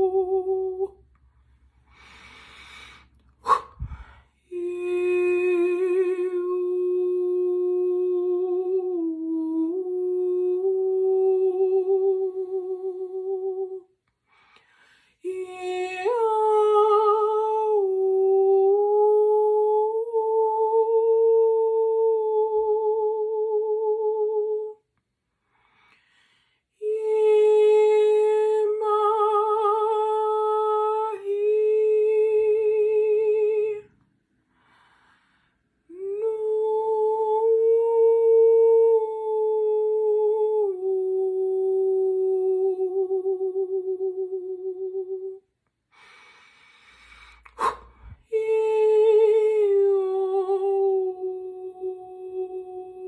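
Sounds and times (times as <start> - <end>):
woman humming: 0.0 - 1.0, 3.4 - 13.8, 47.5 - 53.0.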